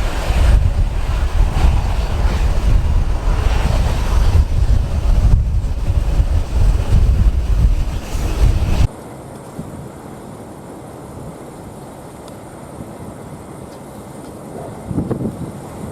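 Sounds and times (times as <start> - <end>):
strong wind buffeting microphone: 0.0 - 8.9, 14.4 - 15.9.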